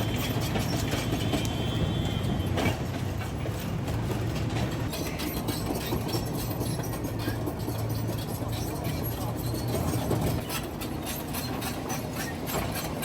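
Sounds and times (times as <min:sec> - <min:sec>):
steel tracks clanking: 0:00.0 - 0:13.0.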